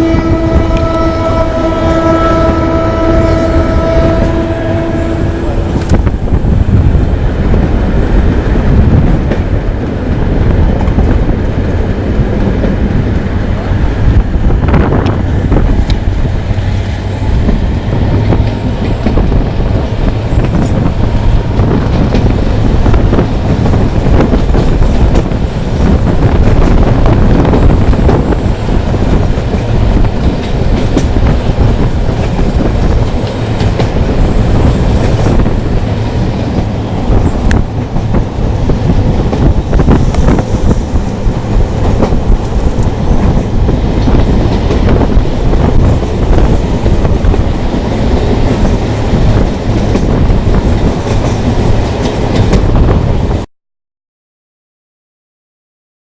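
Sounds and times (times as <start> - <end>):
train rumbling on rails: 0.0 - 53.5.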